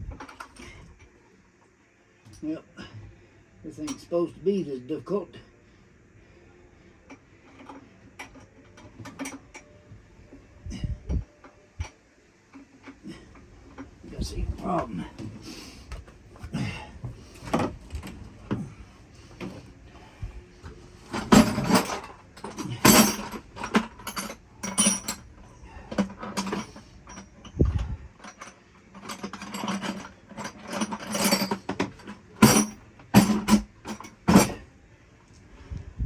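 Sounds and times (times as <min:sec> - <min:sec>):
hand tools clinking on metal: 0:21.1 - 0:25.3, 0:28.2 - 0:34.6.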